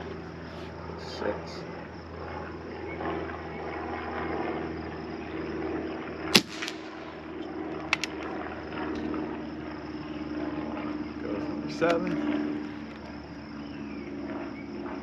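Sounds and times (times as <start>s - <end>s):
air rifle shot: 6.3s - 7.3s.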